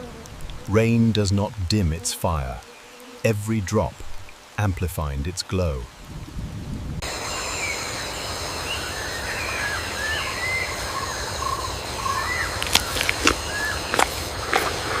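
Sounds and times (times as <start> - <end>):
background hiss: 0.0 - 15.0
high insect drone: 7.0 - 15.0.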